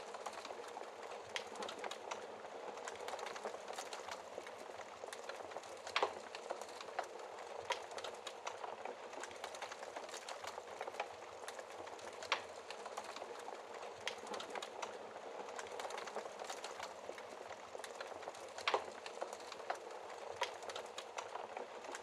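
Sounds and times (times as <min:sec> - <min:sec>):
fire crackling in fireplace: 0:00.0 - 0:22.0.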